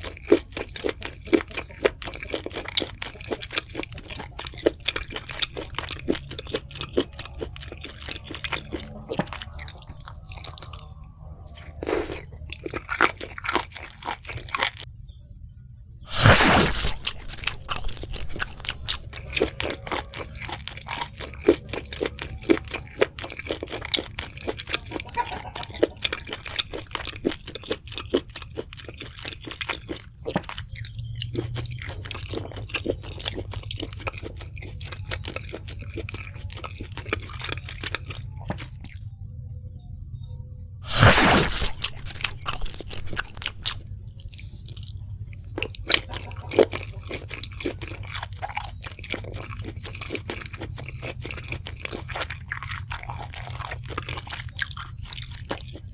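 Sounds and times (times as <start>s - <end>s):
person chewing crispy food: 0.0s - 14.9s, 16.0s - 39.5s, 40.8s - 55.9s.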